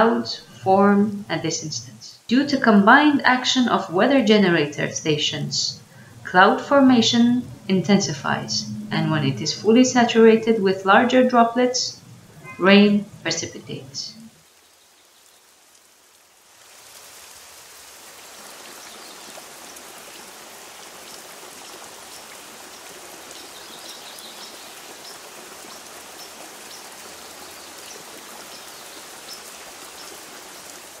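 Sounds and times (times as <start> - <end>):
steady rain: 0.0 - 31.0.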